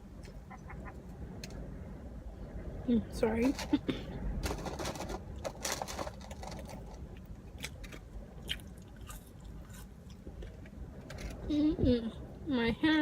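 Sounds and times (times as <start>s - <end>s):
person chewing food: 6.7s - 10.7s.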